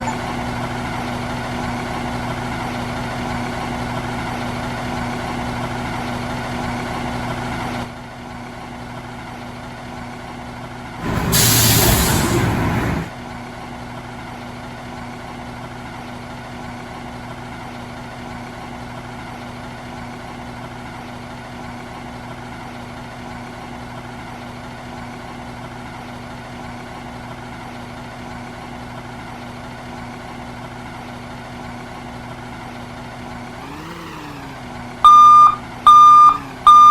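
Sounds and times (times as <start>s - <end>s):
diesel engine idling: 0.0s - 13.1s, 28.9s - 36.9s
air brake hiss: 11.0s - 13.1s.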